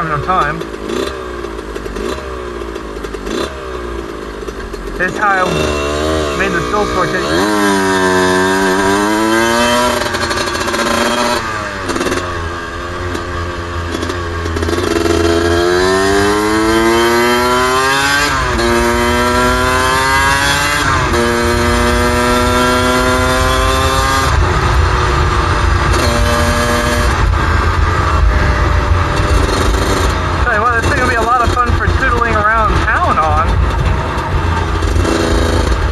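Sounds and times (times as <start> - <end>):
two-stroke motorcycle engine accelerating: 0.0 - 35.9
wind rumble on microphone: 20.9 - 30.4.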